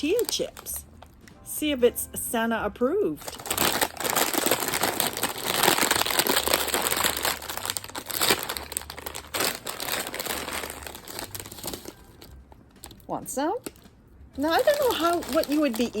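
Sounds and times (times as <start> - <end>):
chip bag crinkling: 0.0 - 0.8, 3.2 - 13.0, 13.6 - 16.0.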